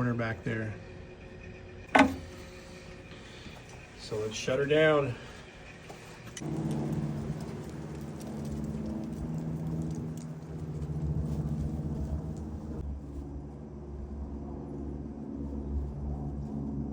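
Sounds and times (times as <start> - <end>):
boiler blower humming: 0.0 - 12.8.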